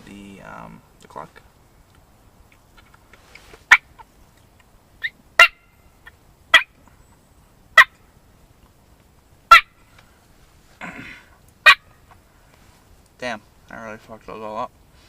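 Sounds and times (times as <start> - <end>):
turkey call clucks: 2.5 - 6.8, 7.8 - 8.0, 9.5 - 9.8, 11.6 - 12.2.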